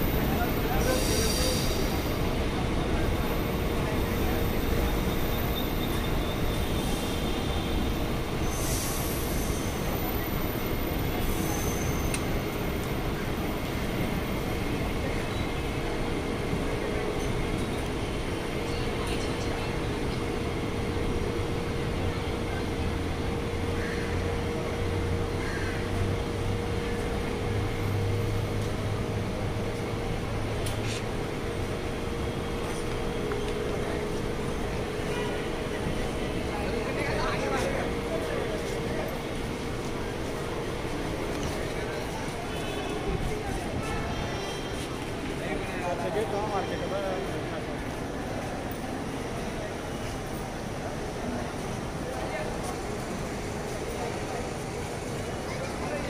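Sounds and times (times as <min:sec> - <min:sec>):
high wheel squeals: 0:00.0 - 0:15.7
train rumble and hum: 0:00.0 - 0:56.0.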